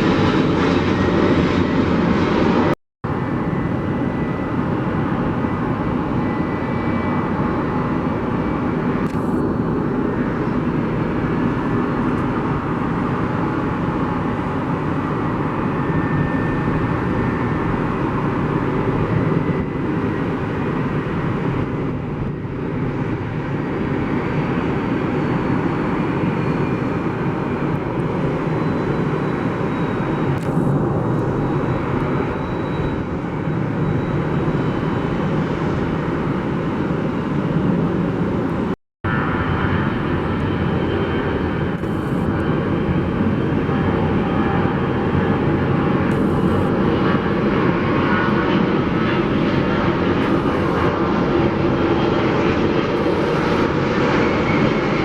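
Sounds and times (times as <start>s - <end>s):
high engine whine: 0.0s - 55.0s
jet airliner engines roaring: 0.0s - 55.0s.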